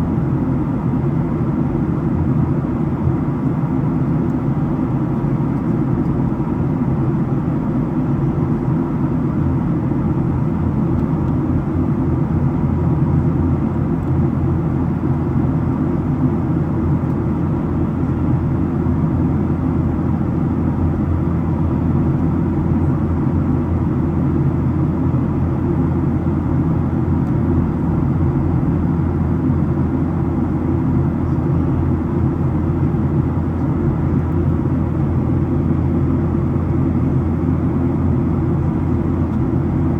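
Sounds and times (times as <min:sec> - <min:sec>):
airliner cabin drone: 0:00.0 - 0:39.9.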